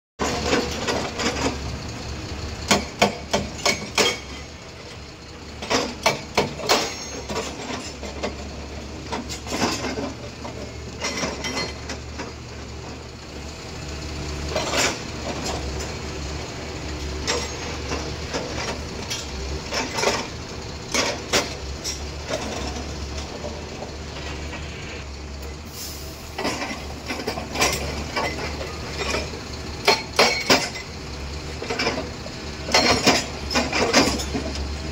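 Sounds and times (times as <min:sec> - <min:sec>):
excavator engine drone: 0:00.2 - 0:34.9
hydraulic rock breaker hammering: 0:02.6 - 0:04.3.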